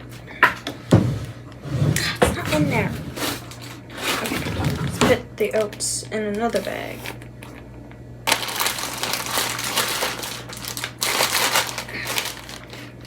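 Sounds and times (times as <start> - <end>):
plastic bag crinkling: 2.7 - 7.6, 8.2 - 13.0.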